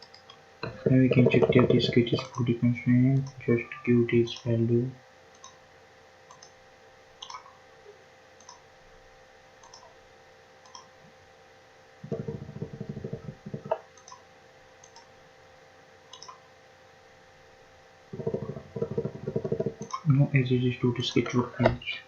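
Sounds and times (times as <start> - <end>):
computer mouse clicks: 0.0 - 2.5, 5.3 - 5.6, 6.3 - 6.6, 7.2 - 7.6, 8.4 - 8.6, 9.6 - 10.0, 10.6 - 10.9, 12.0 - 14.2, 14.8 - 15.1, 16.1 - 16.5, 18.2 - 20.1
faint steady hum: 0.0 - 22.0.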